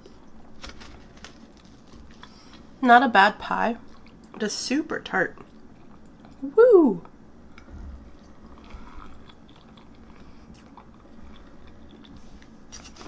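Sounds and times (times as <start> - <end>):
person quietly chewing: 3.9 - 4.4, 5.4 - 6.4, 7.0 - 13.0.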